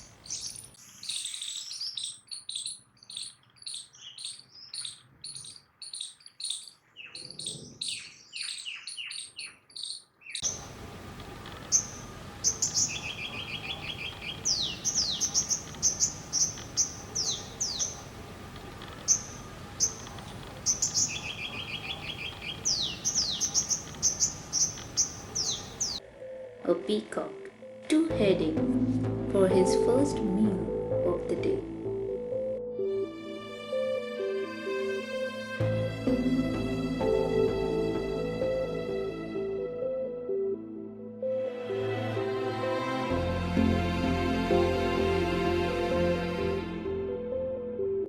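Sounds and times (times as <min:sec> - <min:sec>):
rapid high bird chirps: 0:00.0 - 0:10.8, 0:11.6 - 0:18.2, 0:19.0 - 0:26.0
whistled bird notes and trills: 0:00.0 - 0:10.8, 0:11.6 - 0:18.2, 0:19.0 - 0:26.5
steady background hiss: 0:10.4 - 0:26.4.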